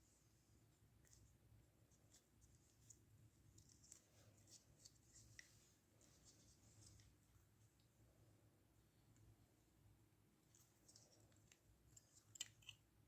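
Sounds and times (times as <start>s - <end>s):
faint clicks of small parts: 10.5s - 13.0s.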